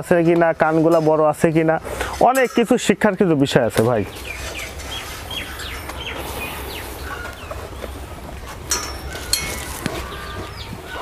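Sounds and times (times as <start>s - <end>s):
small birds chirping: 2.8s - 11.0s.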